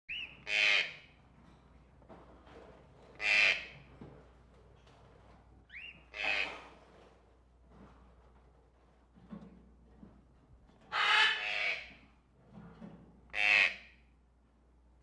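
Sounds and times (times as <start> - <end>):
harsh bird squawks: 11.0 - 11.9.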